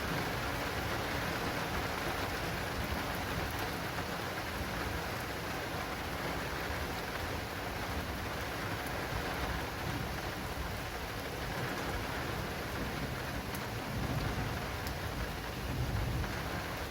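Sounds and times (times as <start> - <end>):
heavy rain on plastic canopy: 0.0 - 16.9.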